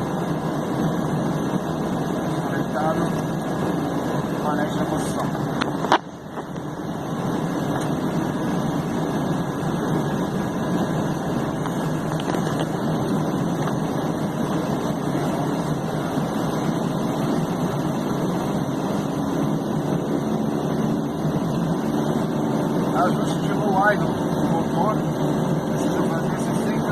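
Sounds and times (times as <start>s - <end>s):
turboprop engines idling: 0.0s - 26.9s.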